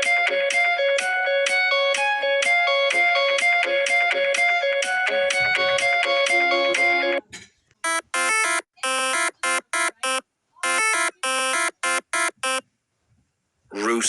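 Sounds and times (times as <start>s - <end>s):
buzzy electronic beep melody: 7.8s - 12.6s
plucked instrumental tune: 7.8s - 12.6s.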